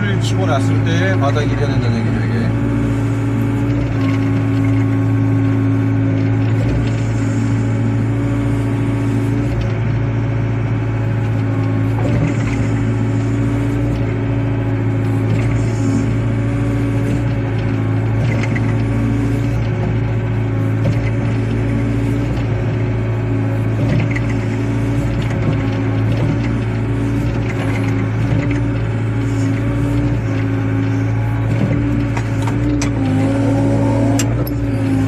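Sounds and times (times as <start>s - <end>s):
excavator diesel engine running: 0.0s - 35.0s
higher machine tone: 32.7s - 35.0s.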